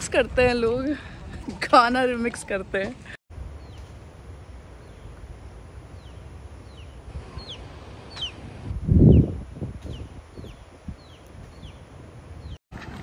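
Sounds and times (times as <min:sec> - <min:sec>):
outdoor background hiss: 0:02.1 - 0:12.6
bird chirping: 0:05.9 - 0:08.5, 0:09.1 - 0:12.6.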